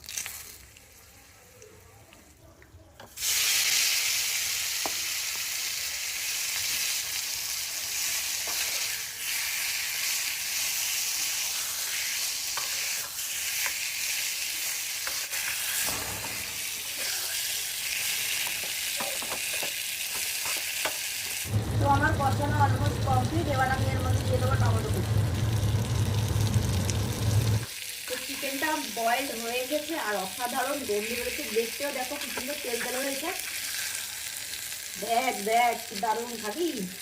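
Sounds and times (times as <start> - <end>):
chicken sizzling in hot oil: 3.1 - 37.0.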